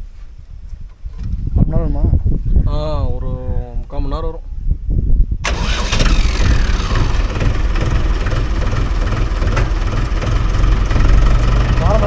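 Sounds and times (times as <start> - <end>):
tractor diesel engine idling: 5.4 - 12.0.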